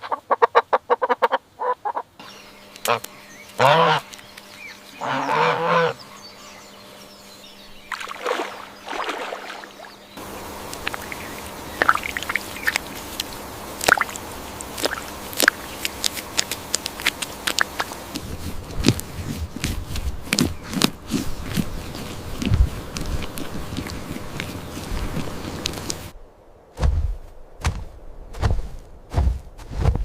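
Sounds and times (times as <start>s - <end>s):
waterfowl honking: 0.0s - 6.6s, 7.9s - 18.2s
light water splashes: 7.9s - 18.2s
steady hiss: 10.2s - 20.3s.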